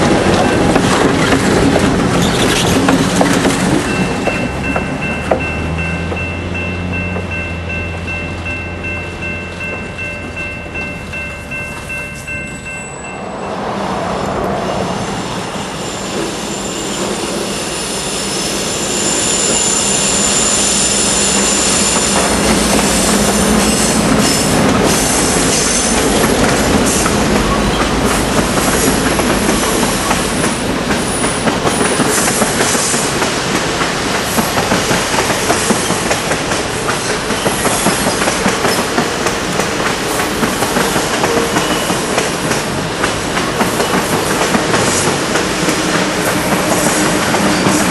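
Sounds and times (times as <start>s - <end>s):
clickety-clack of wheels: 0.0s - 7.4s, 21.5s - 47.9s
steel wheels squealing on rail: 0.0s - 7.7s, 10.8s - 33.5s, 34.3s - 47.9s
train passing: 0.0s - 47.9s.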